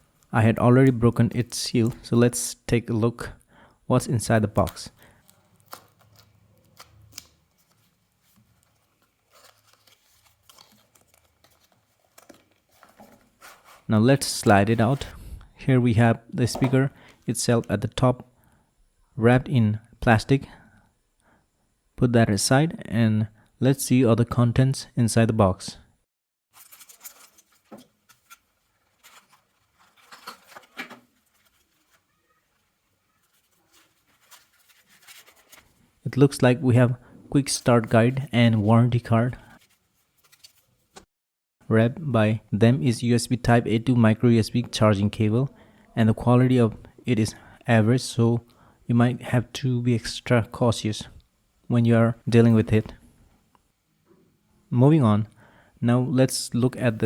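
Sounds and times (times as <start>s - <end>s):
cardboard box and paper rustling: 7.6s - 13.9s, 26.6s - 32.1s, 33.2s - 35.8s.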